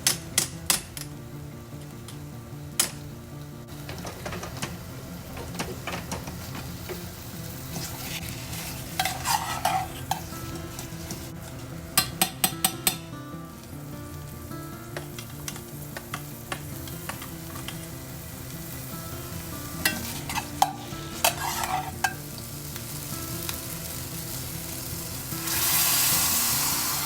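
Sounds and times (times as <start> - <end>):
food sizzling in a pan: 0.1 - 27.0
utensil scraping a pan: 7.7 - 11.3, 19.7 - 22.3.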